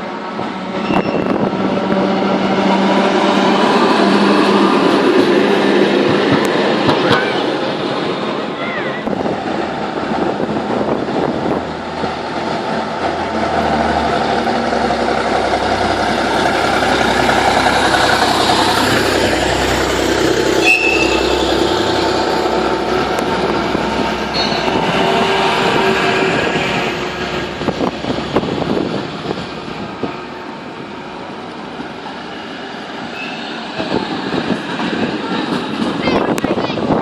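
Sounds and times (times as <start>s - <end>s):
tram rumbling on rails: 0.0s - 37.0s
brief high tone: 0.8s - 1.4s, 20.6s - 21.5s, 24.3s - 24.8s.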